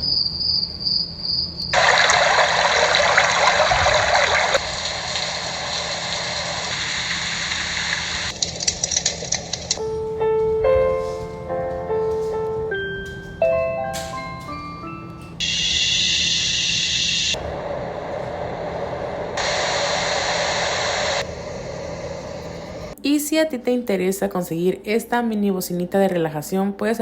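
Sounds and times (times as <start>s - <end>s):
cricket chirping loop: 0.0s - 3.7s, 15.3s - 17.4s
rushing water sound: 1.8s - 8.3s.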